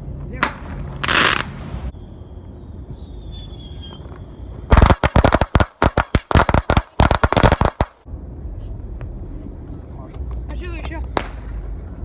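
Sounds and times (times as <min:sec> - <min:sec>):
fireworks cracking: 0:00.4 - 0:01.9, 0:04.7 - 0:08.1, 0:10.3 - 0:11.7.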